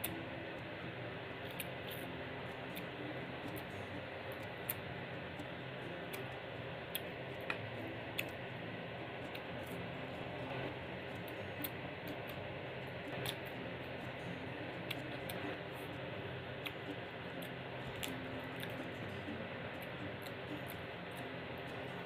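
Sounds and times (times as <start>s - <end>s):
steady hiss: 0.0s - 22.0s
chewing crisp vegetables: 9.2s - 22.0s.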